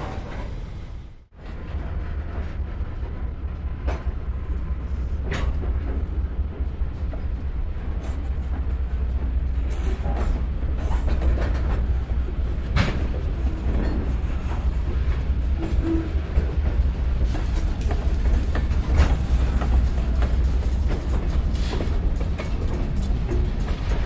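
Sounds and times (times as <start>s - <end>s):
low train rumble: 0.0s - 24.0s
train wheels clicking over rail joints: 0.0s - 24.0s.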